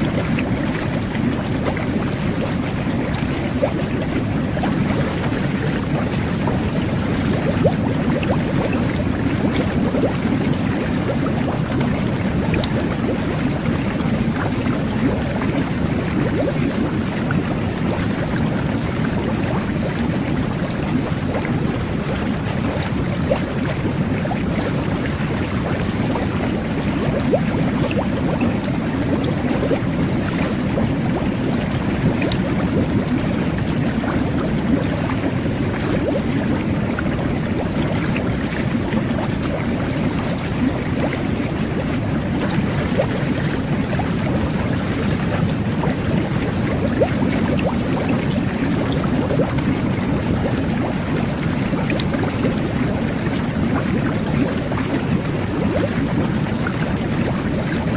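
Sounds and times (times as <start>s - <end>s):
whirlpool tub jets bubbling: 0.0s - 57.9s.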